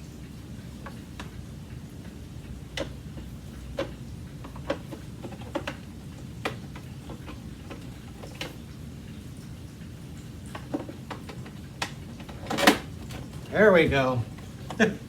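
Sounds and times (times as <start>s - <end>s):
plastic parts clicking and knocking: 2.7s - 8.6s, 10.4s - 15.0s.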